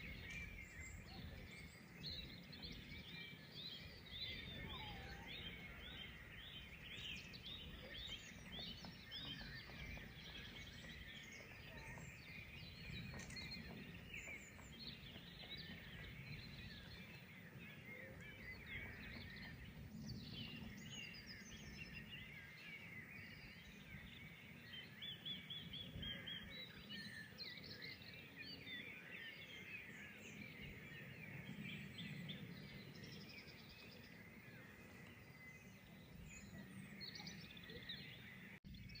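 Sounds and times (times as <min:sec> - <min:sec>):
songbirds chirping and trilling: 0:00.0 - 0:39.0.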